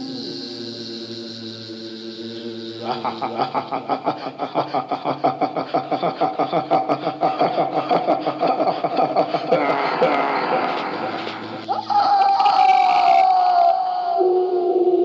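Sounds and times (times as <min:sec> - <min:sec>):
person laughing: 0:02.8 - 0:13.6.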